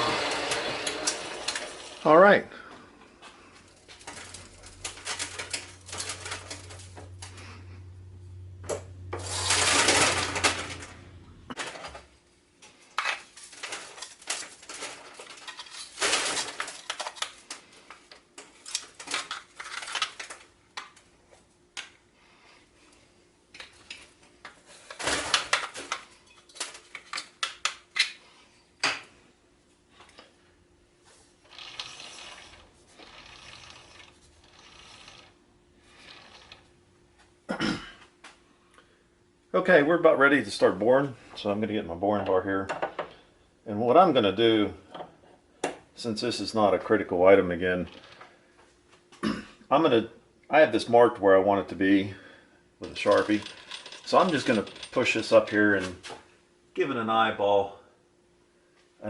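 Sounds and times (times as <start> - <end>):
low machine hum: 0.0 - 12.4.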